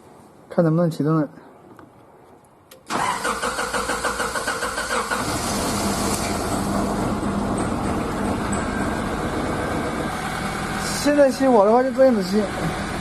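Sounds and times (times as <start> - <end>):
starter motor cranking engine: 2.9 - 11.1
car engine idling: 4.9 - 13.0.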